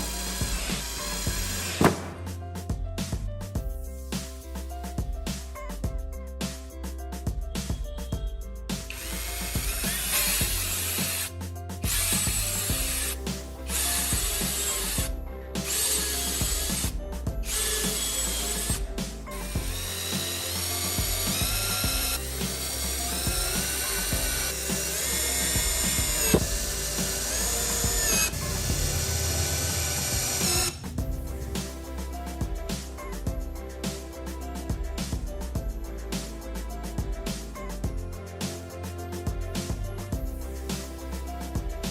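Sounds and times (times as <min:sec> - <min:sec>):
electric power tool cutting wood: 0:00.0 - 0:02.2, 0:08.9 - 0:30.8
background music with steady beat: 0:00.0 - 0:41.9.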